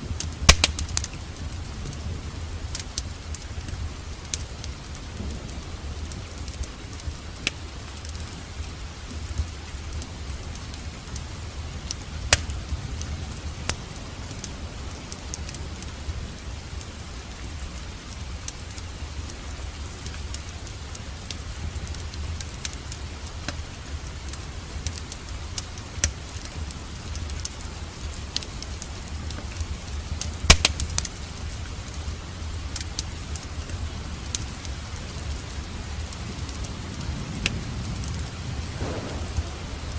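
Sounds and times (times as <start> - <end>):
steady rain: 0.0 - 39.9
wood fire crackling: 0.0 - 39.9
low rumble: 38.3 - 39.9.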